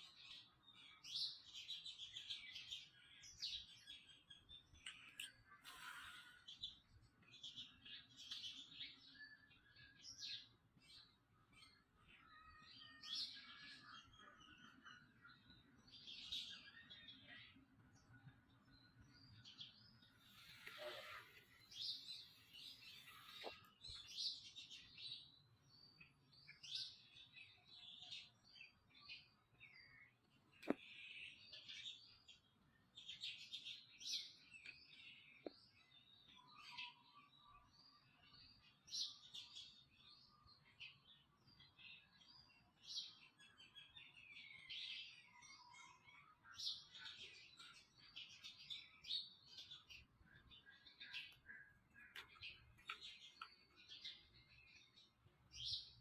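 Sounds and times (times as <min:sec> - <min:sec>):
small animals chirping and squeaking: 0:20.2 - 0:24.1.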